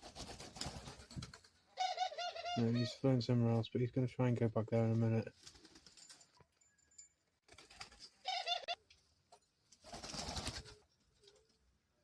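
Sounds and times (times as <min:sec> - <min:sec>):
wings flapping: 0:00.0 - 0:01.6, 0:05.3 - 0:06.2, 0:07.4 - 0:08.7, 0:09.7 - 0:11.6.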